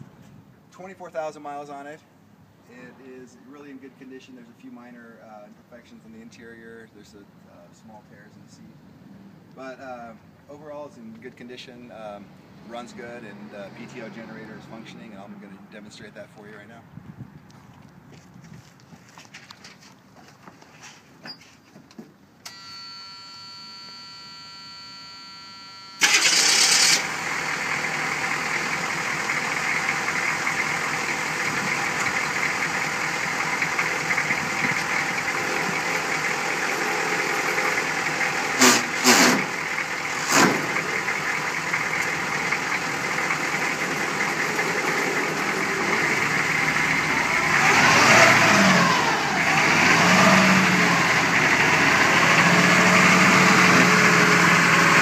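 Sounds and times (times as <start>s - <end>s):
faint steady tone: 22.4s - 26.0s
diesel engine starting and running: 22.4s - 55.0s.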